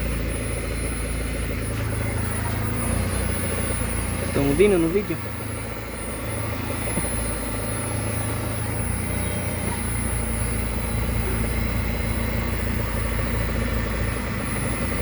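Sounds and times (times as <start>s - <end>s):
fast dense rattle: 0.0s - 15.0s
low mechanical running: 0.0s - 15.0s.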